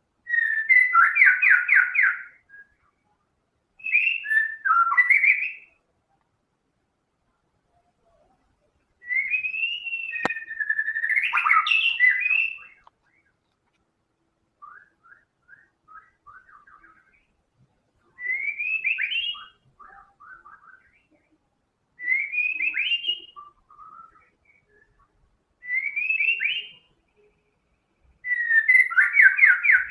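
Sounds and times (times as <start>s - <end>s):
soft bird chirping: 0.2s - 6.3s, 7.3s - 29.9s
bird singing whistled phrases: 0.3s - 3.0s, 3.8s - 5.8s, 9.0s - 13.4s, 14.6s - 17.3s, 18.1s - 21.2s, 22.0s - 27.3s, 28.2s - 29.9s.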